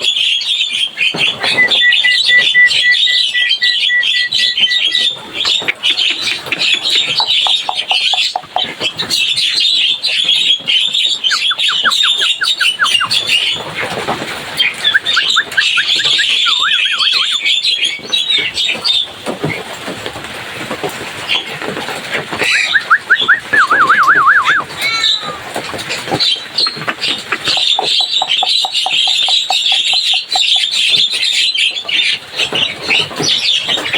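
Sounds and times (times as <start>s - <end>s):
myna bird chattering: 1.0s - 13.6s, 14.6s - 18.7s, 22.4s - 25.2s, 25.8s - 32.2s
bird whistled sweeps: 1.4s - 5.1s, 14.9s - 17.6s, 22.5s - 24.6s.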